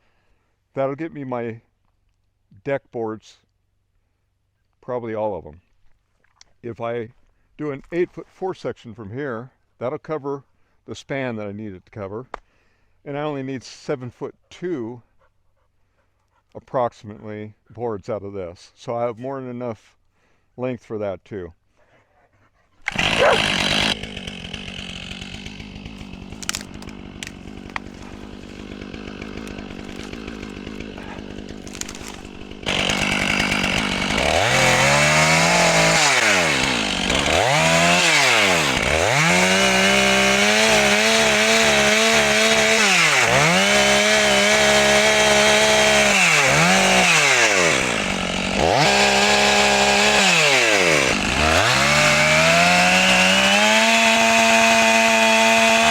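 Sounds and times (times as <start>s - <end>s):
chainsaw cutting log: 22.8s - 55.9s.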